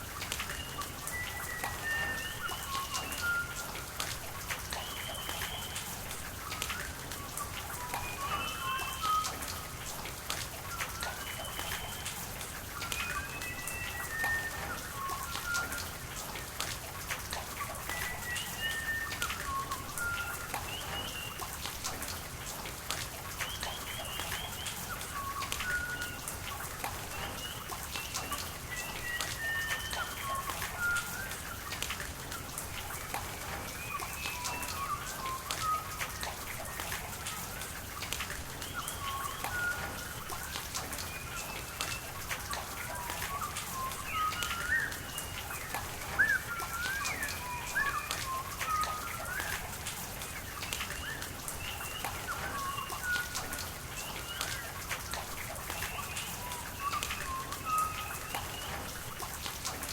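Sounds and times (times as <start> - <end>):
rain falling: 0.0 - 59.9
running water: 0.0 - 59.9
birds chirping and whistling: 0.4 - 3.8, 7.8 - 9.6, 12.8 - 15.8, 17.9 - 21.6, 23.4 - 31.8, 32.8 - 37.4, 38.6 - 59.2.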